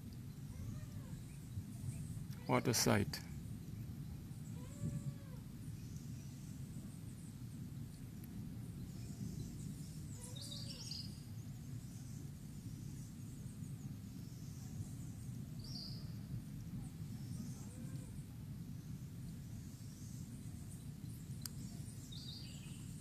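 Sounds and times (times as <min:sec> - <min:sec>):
distant volcano rumble: 0:00.0 - 0:23.0
bird chirps: 0:08.9 - 0:13.1.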